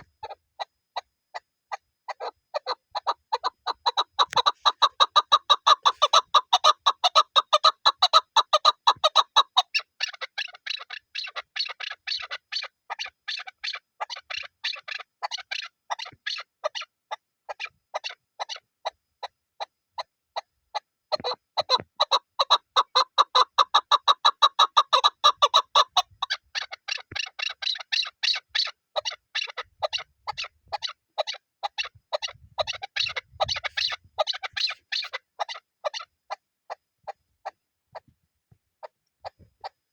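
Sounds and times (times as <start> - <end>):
partridge clucking call: 0.0 - 1.1, 1.7 - 18.6, 21.1 - 38.1.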